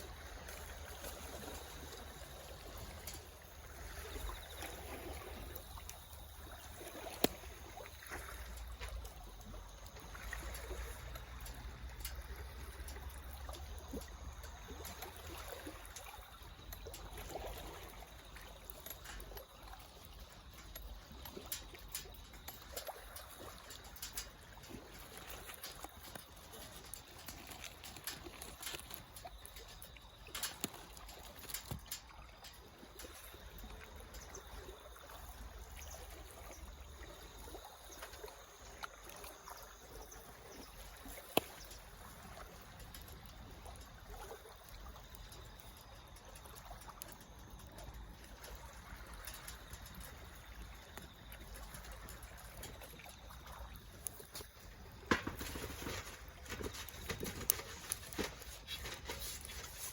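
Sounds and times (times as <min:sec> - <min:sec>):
fire crackling and popping: 0:18.2 - 0:33.2
wood fire hissing: 0:55.0 - 0:59.9.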